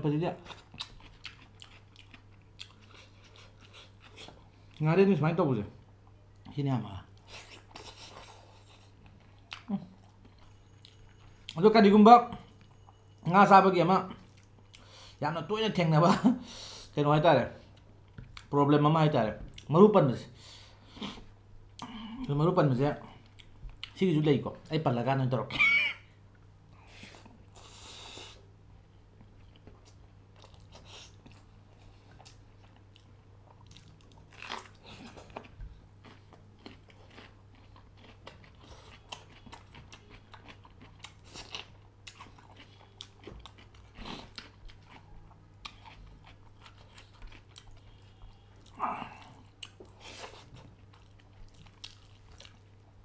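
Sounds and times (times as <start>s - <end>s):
faint low hum: 0.0s - 53.0s
person chewing food: 0.4s - 4.8s, 5.8s - 11.6s, 14.2s - 15.0s, 17.7s - 18.5s, 23.0s - 24.0s, 29.1s - 53.0s.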